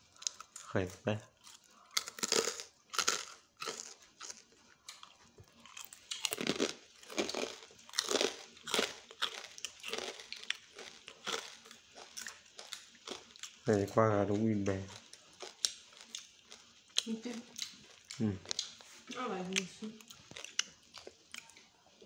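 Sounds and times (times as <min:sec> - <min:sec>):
person crunching crisp food: 0:00.0 - 0:13.8, 0:14.6 - 0:22.0.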